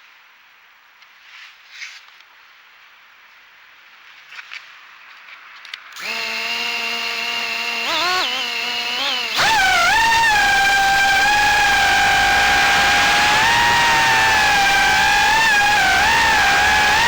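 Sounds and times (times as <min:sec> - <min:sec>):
quadcopter motors whining: 0:06.0 - 0:17.0.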